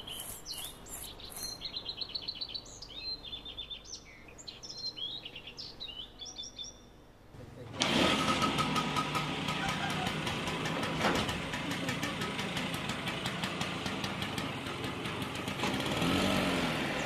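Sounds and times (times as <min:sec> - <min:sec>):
scooter engine running: 0:07.6 - 0:17.0.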